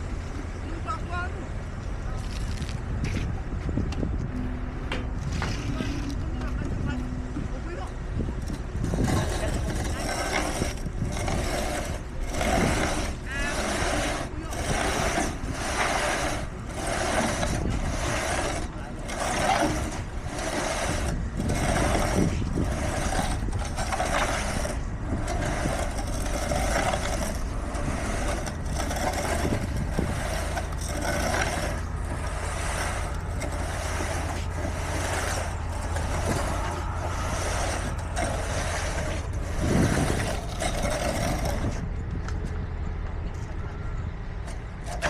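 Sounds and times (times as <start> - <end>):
diesel machinery engine pulsing: 0.0 - 45.0.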